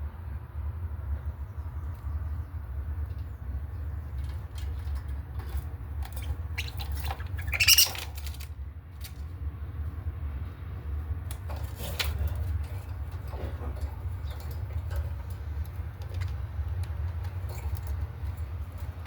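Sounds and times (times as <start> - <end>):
budgerigars chirping: 6.2 - 8.0.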